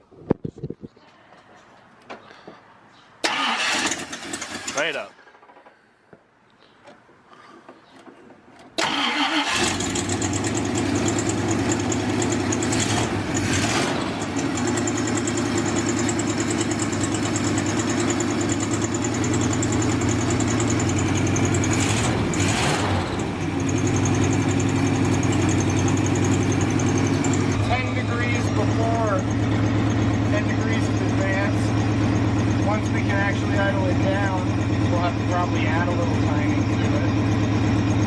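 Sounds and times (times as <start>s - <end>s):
engine starting and idling: 3.2s - 5.7s, 8.8s - 38.0s
engine throttle blips: 8.8s - 38.0s.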